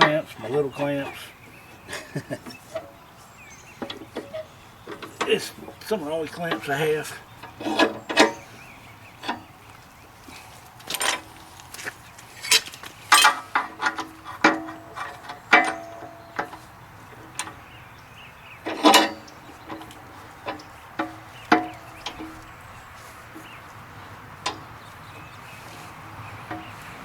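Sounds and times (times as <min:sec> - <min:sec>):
steel clamps clanking on metal: 0:02.0 - 0:03.0, 0:03.8 - 0:08.6, 0:09.2 - 0:09.6, 0:10.8 - 0:11.4, 0:12.4 - 0:17.7, 0:18.6 - 0:22.7, 0:24.4 - 0:25.3, 0:26.4 - 0:27.0.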